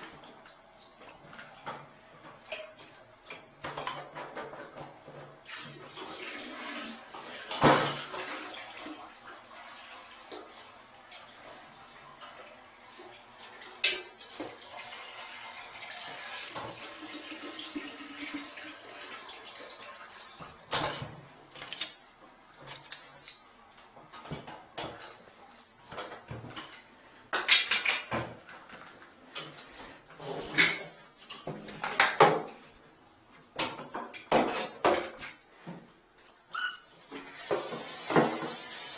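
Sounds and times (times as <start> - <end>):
water running and splashing: 5.4 - 20.7, 37.0 - 38.9.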